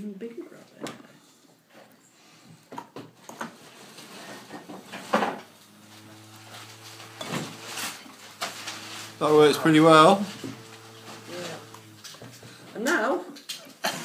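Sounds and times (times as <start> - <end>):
electric motor humming: 3.6 - 12.8.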